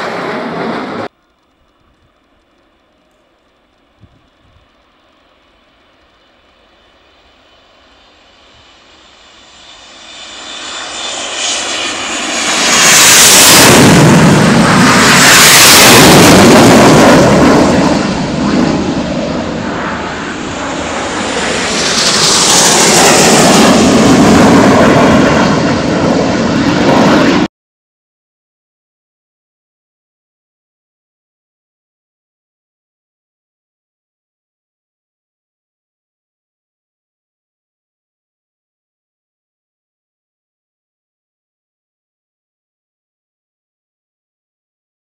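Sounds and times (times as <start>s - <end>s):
jets flying low overhead: 0.0s - 27.5s.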